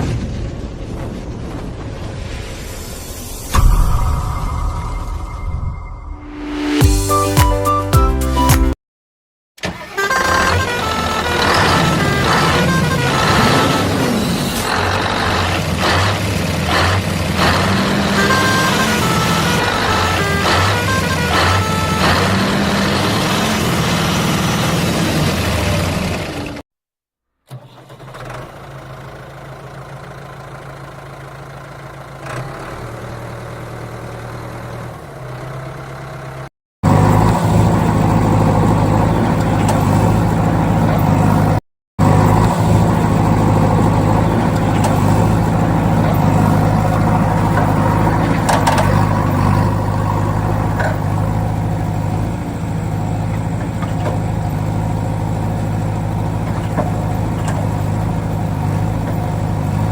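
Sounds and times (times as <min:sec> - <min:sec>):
heavy vehicle engine idling: 0:10.2 - 0:26.6, 0:28.5 - 0:32.2, 0:32.8 - 0:59.9.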